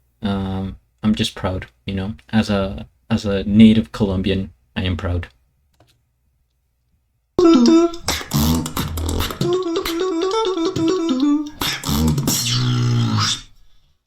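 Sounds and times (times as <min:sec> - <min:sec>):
sung melody: 0:07.4 - 0:11.6
mouth percussion hits: 0:07.4 - 0:13.4
vocal bass: 0:07.4 - 0:13.6.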